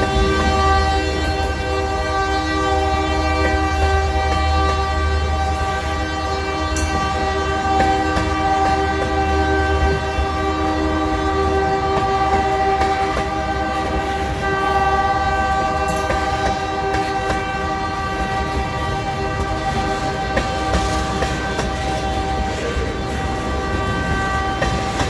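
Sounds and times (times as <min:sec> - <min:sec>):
freight train rumbling past: 0:00.0 - 0:25.0
locomotive horn chord: 0:00.0 - 0:25.0.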